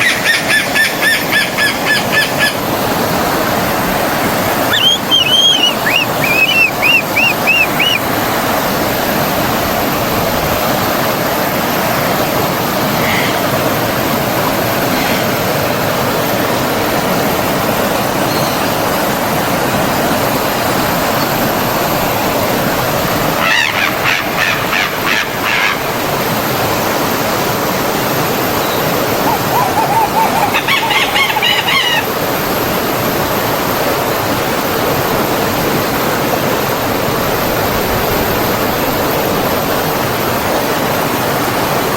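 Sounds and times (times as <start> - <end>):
stream flowing: 0.0 - 41.9
birds chirping: 4.6 - 8.1, 28.5 - 32.2.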